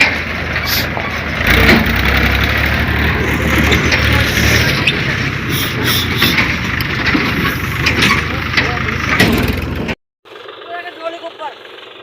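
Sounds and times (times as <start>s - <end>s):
tractor engine rumbling: 0.0s - 12.0s
clicks and knocks: 6.2s - 10.0s.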